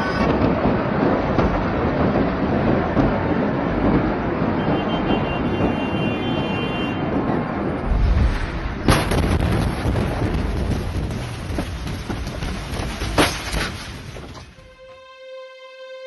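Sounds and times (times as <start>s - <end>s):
loud steady rumbling: 7.0s - 14.4s.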